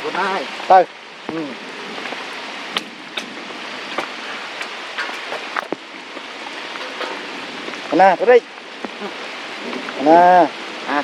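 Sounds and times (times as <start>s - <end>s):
steady rain hiss: 0.0s - 11.0s
drips and taps of drops: 2.0s - 10.0s.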